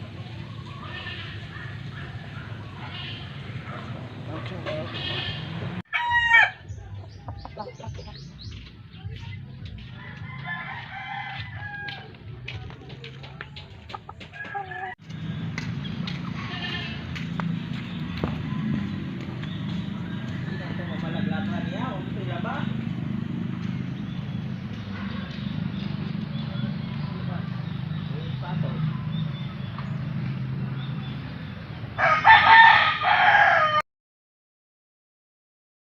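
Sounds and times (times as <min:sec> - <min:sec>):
rooster clucking: 0:00.4 - 0:08.2, 0:10.0 - 0:15.0
rooster crowing: 0:05.9 - 0:06.6, 0:10.0 - 0:12.2, 0:32.0 - 0:33.8.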